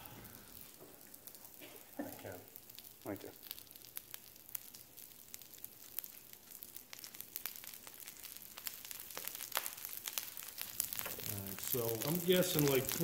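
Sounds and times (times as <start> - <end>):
fish frying in oil: 0.0 - 13.0
spitting oil crackles and pops: 0.0 - 13.0.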